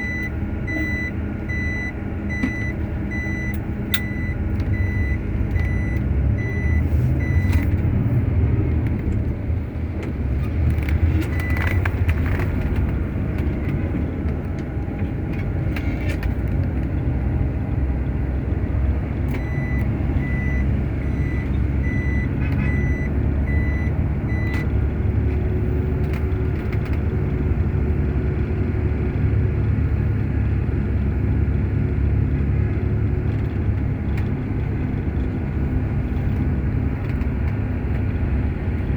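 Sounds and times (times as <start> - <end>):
reversing alarm beeping: 0.0 - 7.6, 19.4 - 24.6
truck engine running: 0.0 - 38.9.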